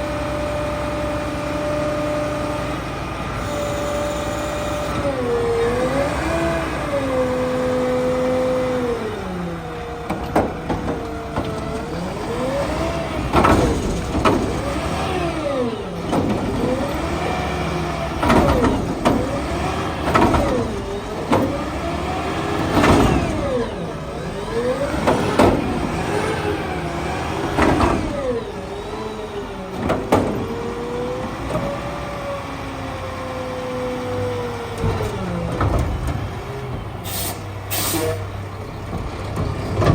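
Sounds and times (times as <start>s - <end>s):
hydraulic whine: 0.0s - 32.0s
diesel truck engine revving: 0.0s - 39.9s
cart clanging and banging: 38.1s - 39.9s.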